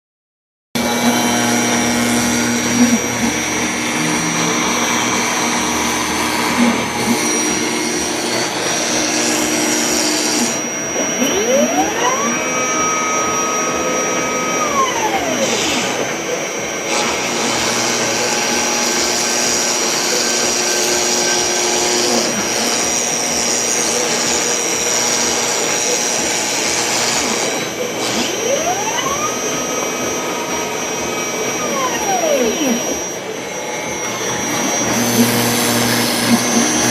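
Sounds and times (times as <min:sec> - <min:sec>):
rising and falling machine tone: 0:00.8 - 0:19.1, 0:26.8 - 0:36.9
router spindle whine: 0:00.8 - 0:36.9.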